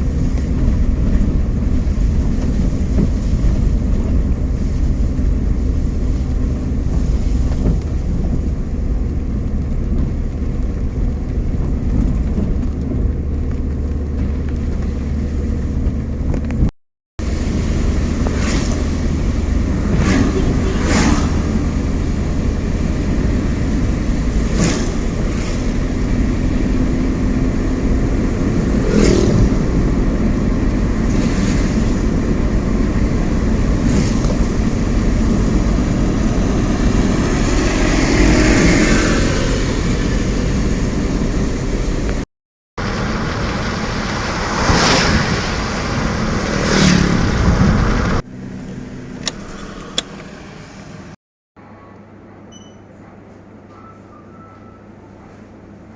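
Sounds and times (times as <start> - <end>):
road noise rumble: 0.0 - 51.2
vehicles whooshing by: 12.8 - 42.2, 42.8 - 51.2.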